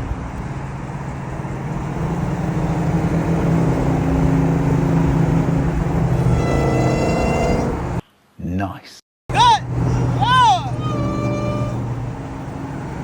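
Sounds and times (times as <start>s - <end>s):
car engine and road noise: 0.0s - 8.0s, 9.3s - 13.0s
high steady tone: 9.3s - 12.0s.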